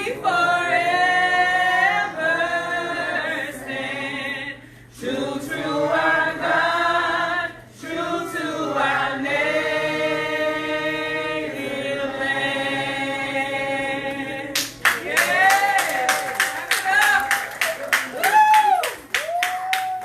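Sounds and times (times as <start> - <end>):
group singing in unison: 0.0 - 15.5.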